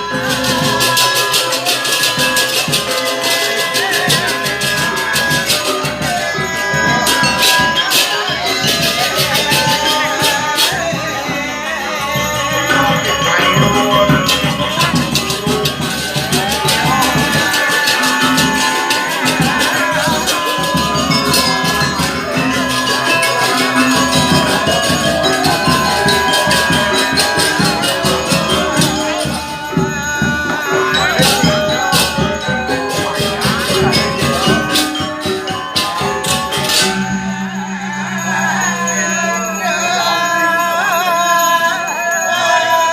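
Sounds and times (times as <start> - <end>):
metallophones and gongs playing: 0.0 - 42.9
small cymbals clashing: 12.2 - 40.7.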